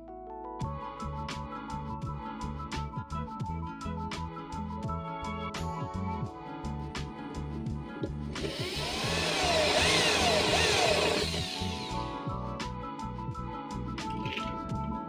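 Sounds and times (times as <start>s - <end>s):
background music: 0.0s - 15.0s
power tool whine: 8.4s - 12.3s.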